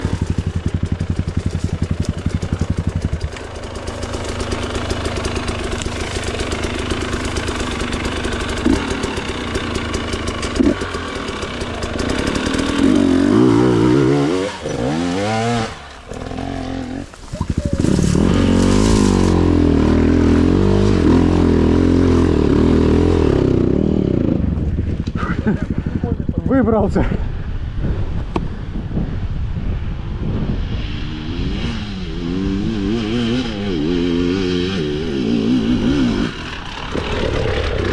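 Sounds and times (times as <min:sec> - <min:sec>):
motorcycle engine revving: 0:00.0 - 0:26.6, 0:30.4 - 0:37.9
wind buffeting microphone: 0:23.3 - 0:34.0.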